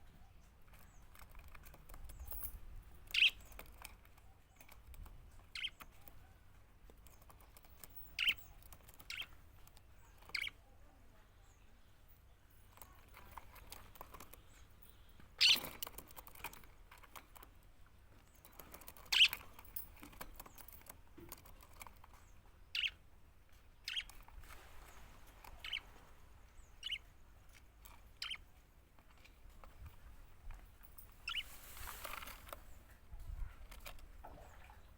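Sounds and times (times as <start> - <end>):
budgerigars chirping: 3.1 - 3.4, 5.5 - 5.8, 8.1 - 9.4, 10.2 - 10.6, 15.4 - 15.7, 19.1 - 19.4, 22.7 - 23.0, 23.8 - 24.1, 25.6 - 26.0, 26.6 - 27.1, 28.2 - 28.4, 31.2 - 31.6.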